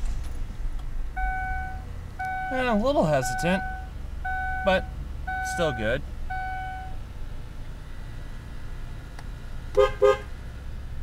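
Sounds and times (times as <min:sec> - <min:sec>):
car engine idling: 0:00.0 - 0:11.0
car horn toots: 0:09.8 - 0:10.3.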